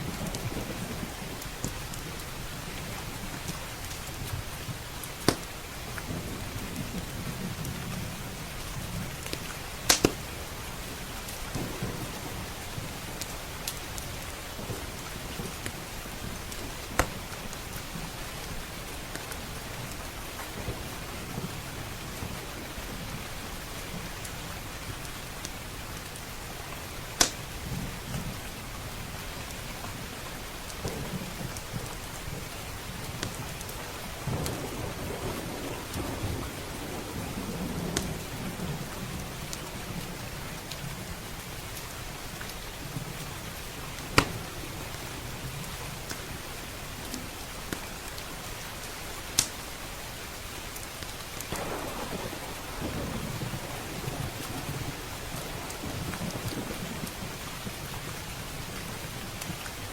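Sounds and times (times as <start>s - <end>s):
thunder rumbling: 0.0s - 3.5s, 4.4s - 9.6s, 10.2s - 18.2s, 34.1s - 41.3s, 51.5s - 59.3s
faint wood fire crackles: 0.0s - 59.9s
heavy rain: 0.0s - 59.9s
loud sharp crack: 9.9s - 10.2s, 51.5s - 54.8s
sharp pop: 9.9s - 10.2s.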